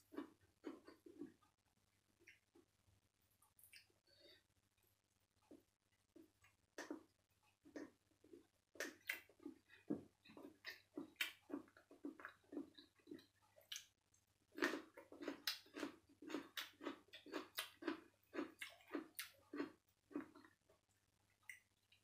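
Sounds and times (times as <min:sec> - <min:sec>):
wet chewing of food: 0:00.0 - 0:01.4, 0:05.5 - 0:20.8.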